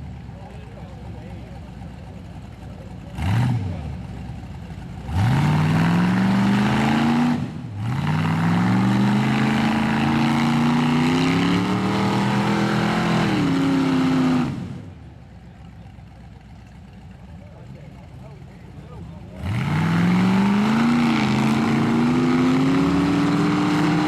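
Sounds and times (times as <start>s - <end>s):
engine revving hard: 3.1s - 4.0s, 5.0s - 14.9s, 19.2s - 24.0s.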